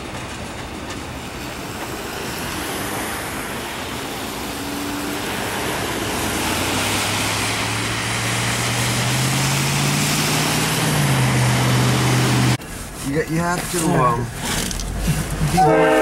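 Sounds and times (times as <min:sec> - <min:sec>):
freight train rolling over rails: 0:00.0 - 0:09.9
diesel engine drone: 0:00.0 - 0:16.0.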